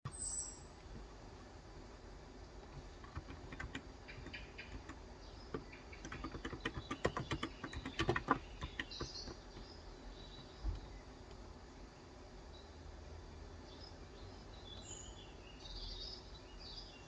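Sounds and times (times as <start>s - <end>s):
soft keyboard keystrokes: 2.6s - 9.8s.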